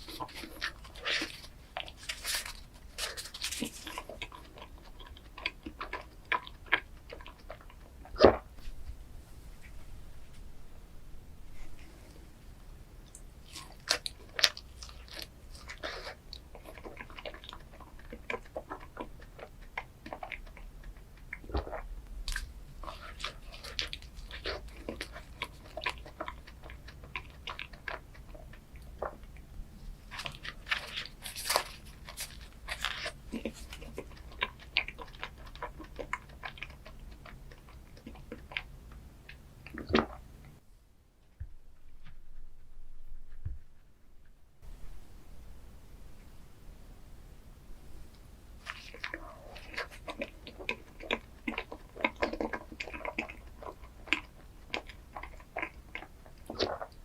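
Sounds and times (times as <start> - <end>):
crisp crackles of chocolate coating: 0.0 - 8.2, 30.0 - 40.6
biting and chewing ice cream: 0.0 - 8.6, 13.1 - 40.6, 48.6 - 57.0.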